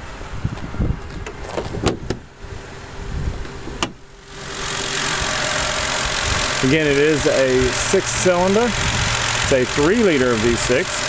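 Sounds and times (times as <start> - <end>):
car engine idling: 2.2 - 11.0.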